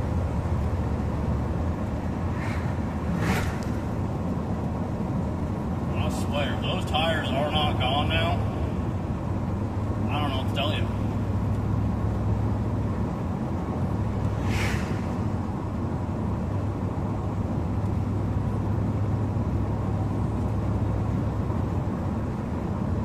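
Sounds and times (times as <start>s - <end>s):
car engine droning: 0.0s - 23.0s
short hiss: 14.4s - 15.3s.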